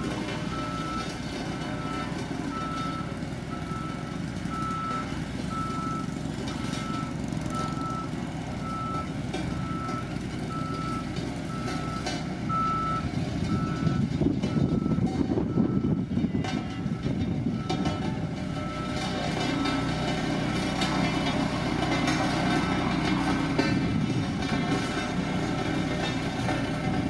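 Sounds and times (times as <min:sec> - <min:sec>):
diesel engine running: 0:00.0 - 0:27.0
reverse alarm beeping: 0:01.8 - 0:16.0.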